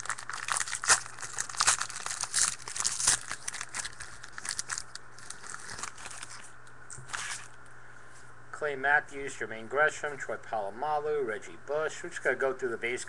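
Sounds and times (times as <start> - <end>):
plastic wrapper crinkling and tearing: 0.0 - 7.6.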